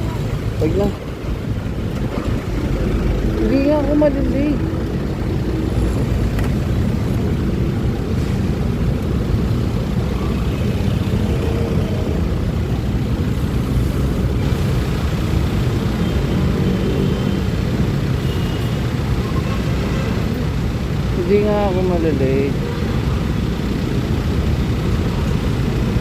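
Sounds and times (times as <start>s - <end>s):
city traffic: 0.0s - 26.0s.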